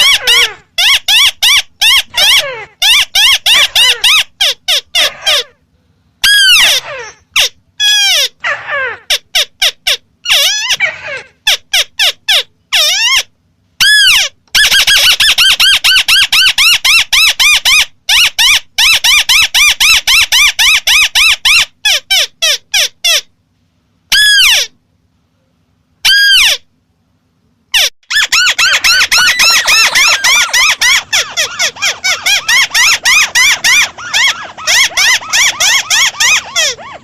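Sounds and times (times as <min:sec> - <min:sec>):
crake calling nasal notes: 0:27.8 - 0:37.0.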